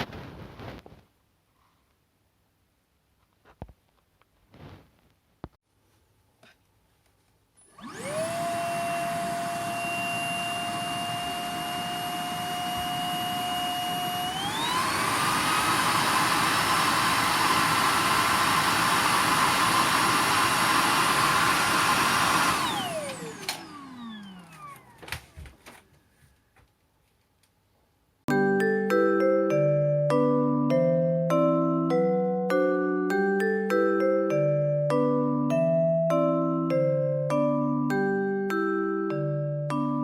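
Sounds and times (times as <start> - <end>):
stick vacuum motor whining: 7.6 - 25.8.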